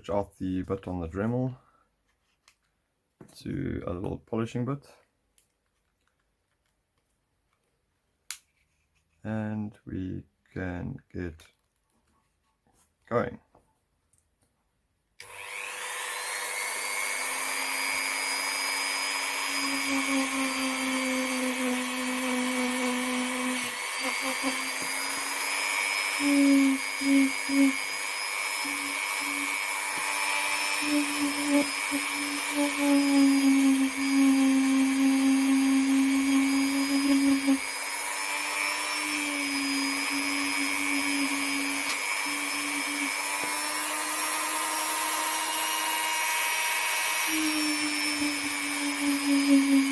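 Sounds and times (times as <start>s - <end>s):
rotary tool whining: 15.2s - 49.9s.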